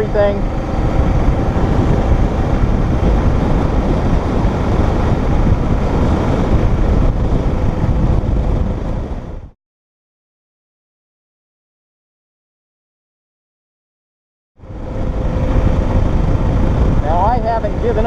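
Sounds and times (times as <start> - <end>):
motorcycle engine running: 0.0 - 9.5, 14.6 - 18.0
wind rushing over microphone: 0.0 - 9.6, 14.6 - 18.0.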